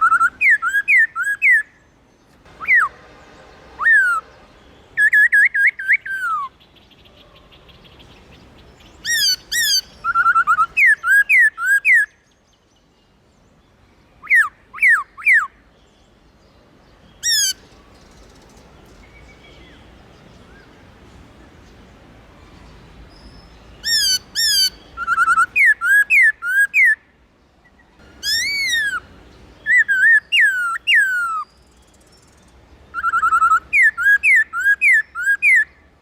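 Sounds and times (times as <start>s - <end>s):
bird trill: 0.0s - 1.9s, 2.5s - 3.0s, 3.8s - 12.4s, 17.1s - 19.9s, 23.1s - 27.0s, 27.7s - 35.9s
bird singing whistled notes: 0.0s - 3.0s, 3.8s - 16.2s, 22.4s - 27.0s, 27.7s - 35.9s.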